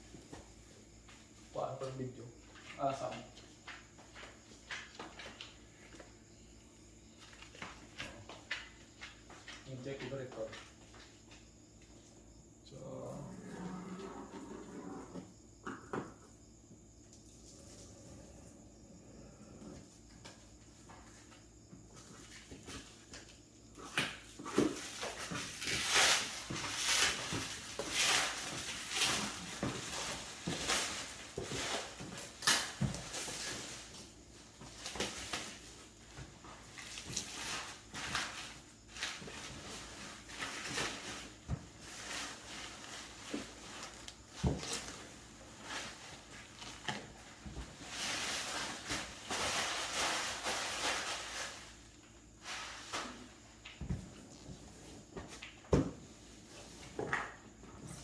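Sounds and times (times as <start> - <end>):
handling rustling and scraping: 24.2 - 58.0.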